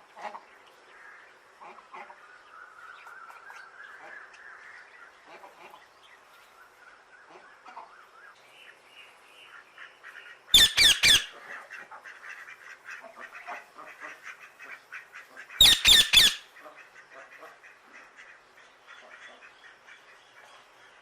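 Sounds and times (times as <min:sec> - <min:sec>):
parrot squawking: 0:10.5 - 0:11.4, 0:15.6 - 0:16.5.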